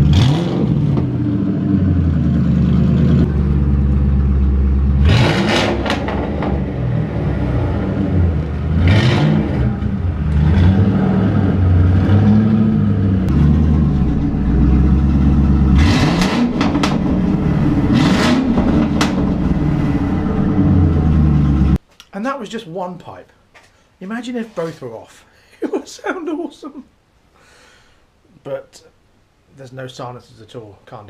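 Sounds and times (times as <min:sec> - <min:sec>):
car engine revving with rasp: 0:00.0 - 0:21.8.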